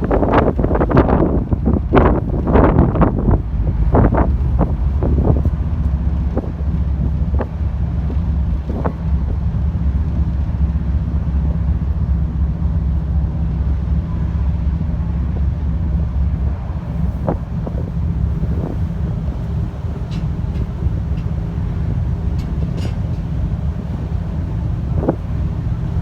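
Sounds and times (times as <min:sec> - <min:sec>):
ship engines droning: 0:00.0 - 0:26.0
wind buffeting microphone: 0:00.0 - 0:26.0.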